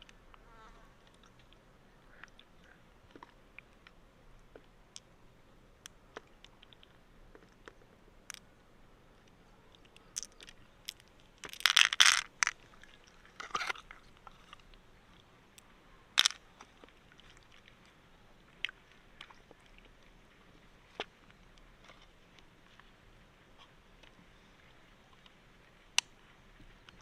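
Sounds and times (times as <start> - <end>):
mussel shells clicking and scraping: 9.2 - 17.8.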